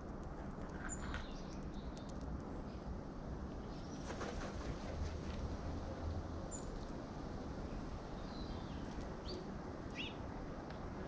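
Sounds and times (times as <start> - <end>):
small birds chirping: 8.1 - 10.2.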